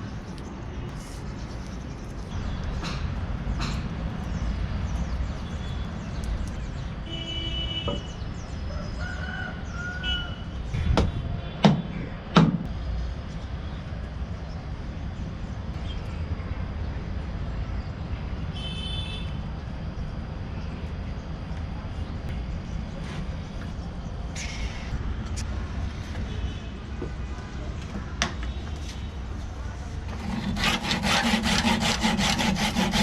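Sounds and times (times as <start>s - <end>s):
sharp knocks: 10.9s - 12.7s.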